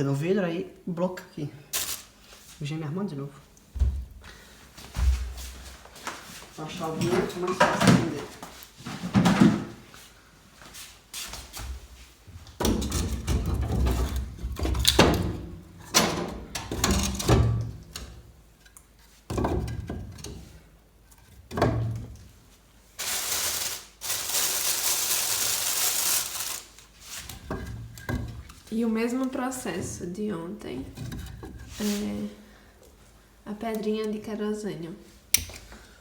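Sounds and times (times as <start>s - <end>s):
steady hiss: 22.9s - 27.4s.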